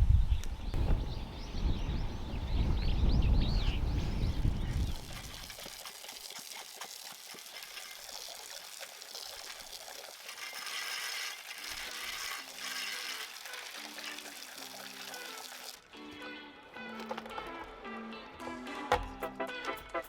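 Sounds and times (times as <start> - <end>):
bird chirps: 0.8 - 5.1
rain pattering: 3.8 - 15.8.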